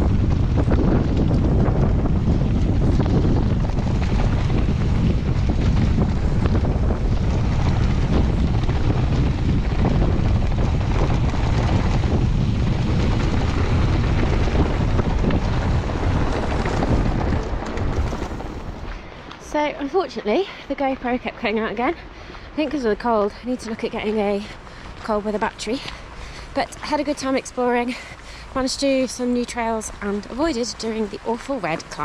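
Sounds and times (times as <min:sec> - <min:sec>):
bike knocks and rattles: 0:00.0 - 0:19.0
tyre rumble on trail: 0:00.0 - 0:32.0
wind buffeting microphone: 0:00.0 - 0:32.0.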